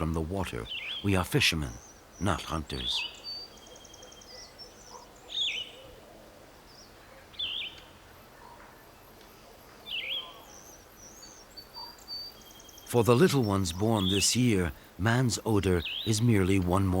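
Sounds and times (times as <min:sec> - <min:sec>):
faint outdoor background: 0:00.0 - 0:17.0
high bird chirps: 0:15.4 - 0:16.5.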